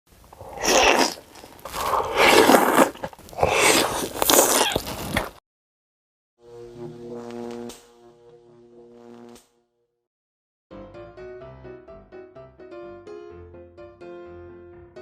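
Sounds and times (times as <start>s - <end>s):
person chewing crisp food: 0.3s - 5.4s.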